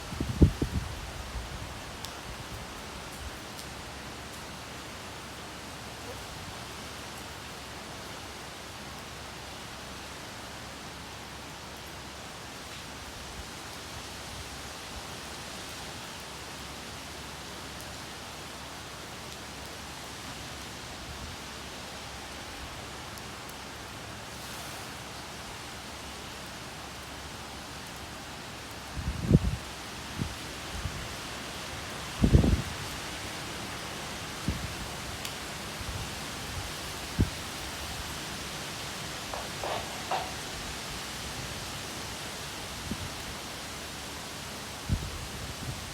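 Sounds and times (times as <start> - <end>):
rain falling with wind: 0.0 - 45.9.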